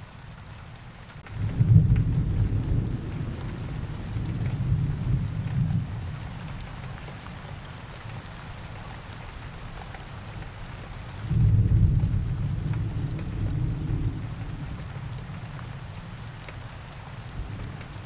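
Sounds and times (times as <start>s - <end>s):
steady rain: 0.0s - 18.0s
low rolling thunder: 1.2s - 6.6s, 11.2s - 16.4s, 17.3s - 18.0s.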